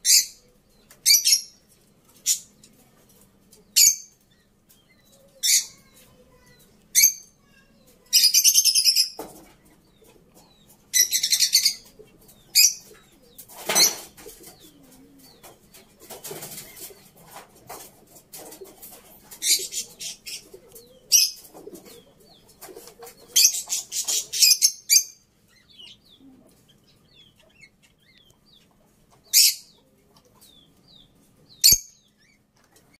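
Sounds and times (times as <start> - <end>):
small birds chirping: 0.0 - 33.0
wings flapping: 12.9 - 24.5.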